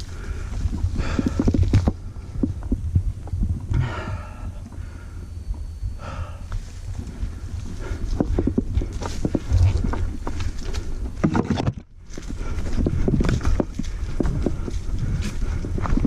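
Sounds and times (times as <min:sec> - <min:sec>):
wind on microphone: 0:00.0 - 0:16.0
bike knocks and rattles: 0:07.8 - 0:16.0.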